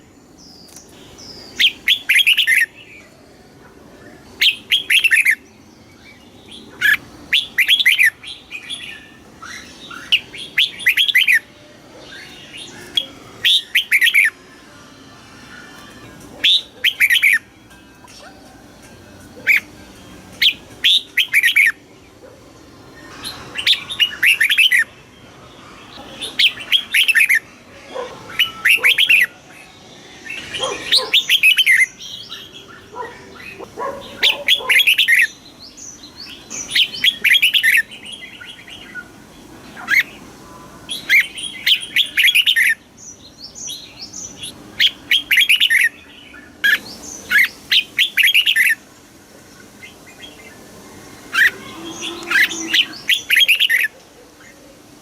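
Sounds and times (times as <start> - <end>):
bird singing warbled notes: 4.2 - 42.9, 51.2 - 53.9.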